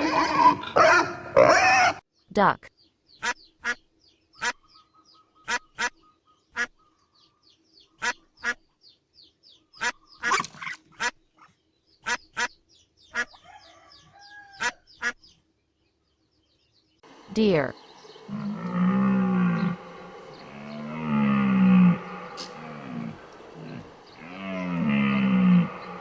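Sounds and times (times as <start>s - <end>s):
duck quacking: 3.2s - 3.8s, 5.4s - 6.8s, 8.0s - 8.6s, 9.8s - 11.2s, 12.0s - 13.4s, 14.6s - 15.2s.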